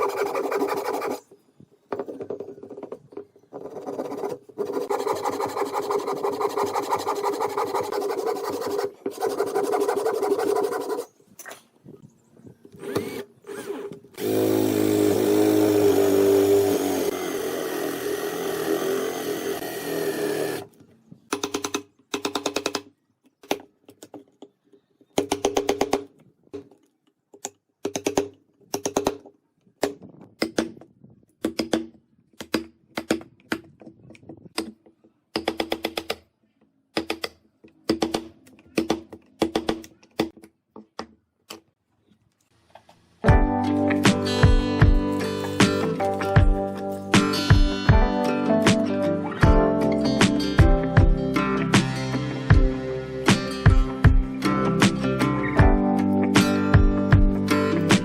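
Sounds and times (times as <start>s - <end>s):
power tool motor running: 12.8s - 20.7s.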